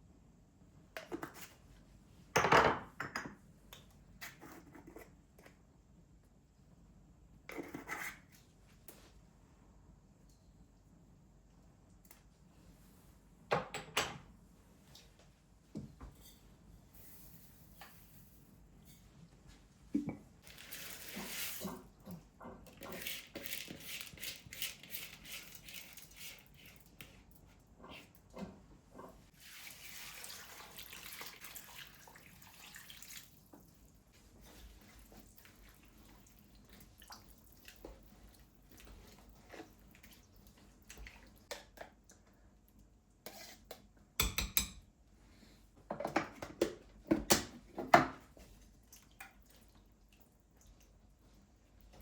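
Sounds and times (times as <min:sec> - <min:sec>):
tap water running: 0:29.4 - 0:33.8.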